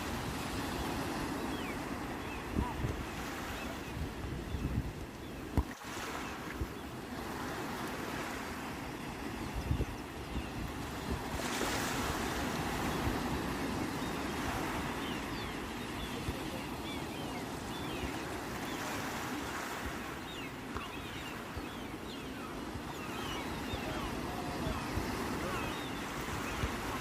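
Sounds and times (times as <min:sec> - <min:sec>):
wind rumbling on microphone: 0:00.0 - 0:05.7
sea waves washing onto shore: 0:00.0 - 0:27.0.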